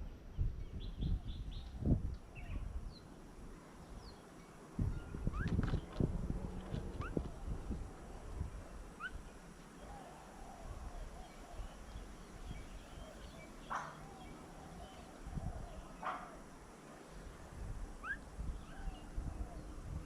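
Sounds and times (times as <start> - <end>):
birds chirping: 6.7 - 17.3.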